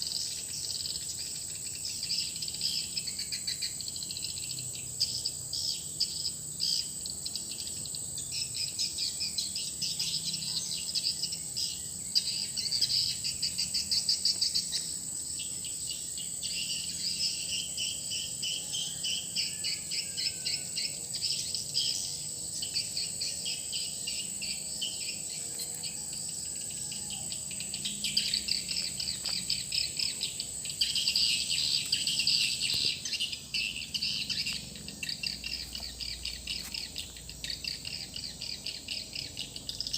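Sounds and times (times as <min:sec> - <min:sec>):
swiftlet high-pitched chirping trills: 0:00.0 - 0:39.9
steady high whine: 0:10.5 - 0:39.9.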